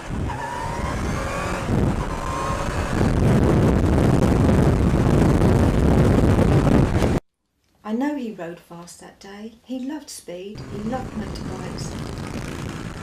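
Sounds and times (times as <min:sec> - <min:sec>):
motorcycle engine accelerating: 0:00.0 - 0:07.2, 0:10.6 - 0:13.0
wind noise: 0:00.0 - 0:07.2, 0:10.6 - 0:13.0.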